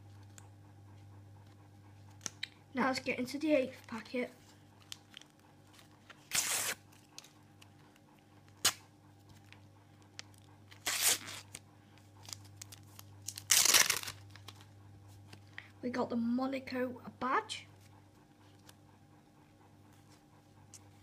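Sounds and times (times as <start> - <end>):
foil packet tearing and crinkling: 4.8 - 7.3, 10.3 - 11.6, 12.2 - 14.7.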